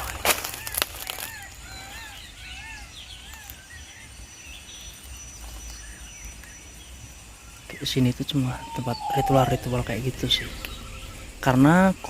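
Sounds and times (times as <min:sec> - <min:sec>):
thin steady high tone: 0:05.9 - 0:12.0.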